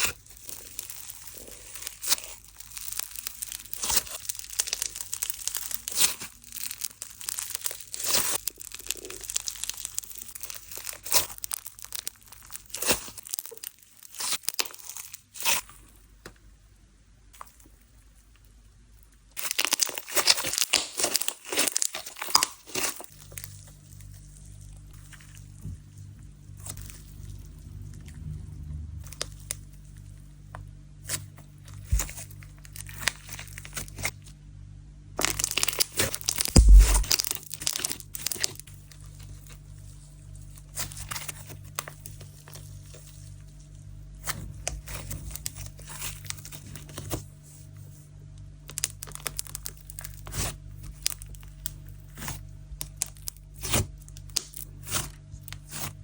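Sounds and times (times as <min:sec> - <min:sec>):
slime squeezed crackling: 0:00.0 - 0:15.7, 0:19.4 - 0:26.0, 0:35.2 - 0:43.4, 0:48.7 - 0:52.2.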